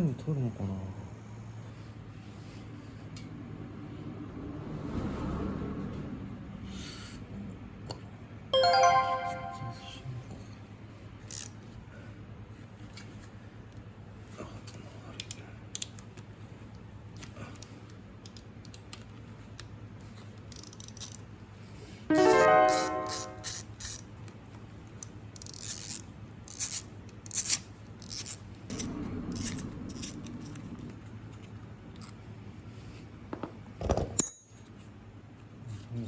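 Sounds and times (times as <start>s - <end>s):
metallic clicks and scrapes: 25.4s - 30.7s.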